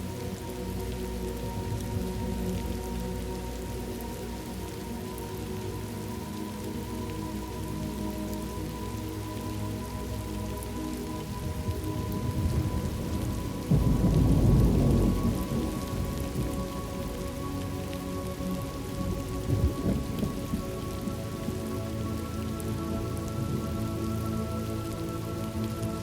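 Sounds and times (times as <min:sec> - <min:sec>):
steady rain falling: 0:00.0 - 0:26.0
thunder rumbling: 0:11.4 - 0:17.3, 0:19.1 - 0:21.5.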